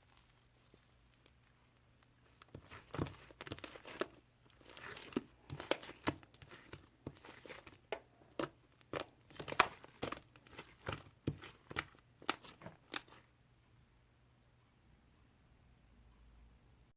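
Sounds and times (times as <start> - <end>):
slime popping and crackling: 0.0 - 13.2.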